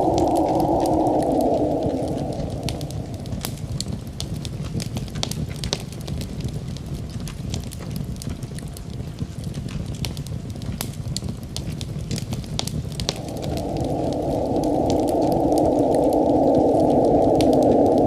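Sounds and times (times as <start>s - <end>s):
low rumble: 0.0s - 5.4s, 12.6s - 18.0s
steady rushing noise: 0.0s - 5.4s, 12.4s - 18.0s
wood fire crackling and popping: 0.0s - 18.0s.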